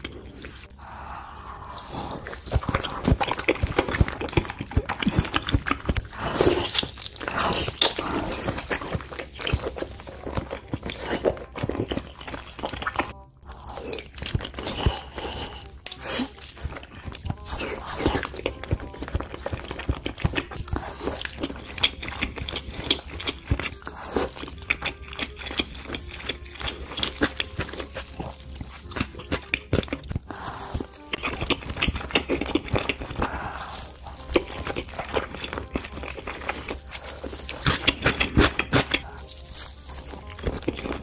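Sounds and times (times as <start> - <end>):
wet chewing: 0.0 - 41.0.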